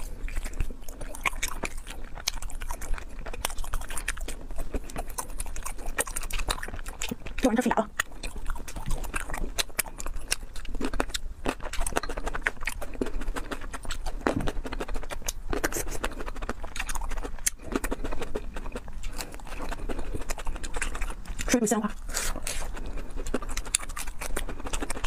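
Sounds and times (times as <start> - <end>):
person chewing with wet smacks: 0.0 - 25.0.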